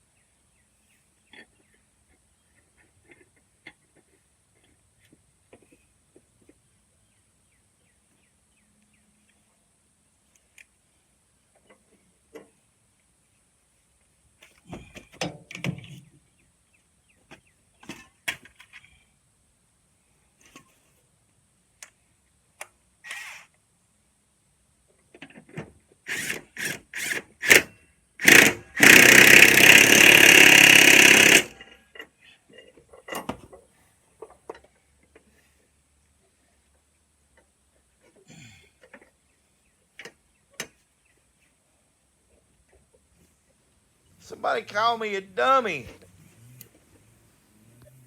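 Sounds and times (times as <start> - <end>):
power tool bursts: 26.1 - 31.6.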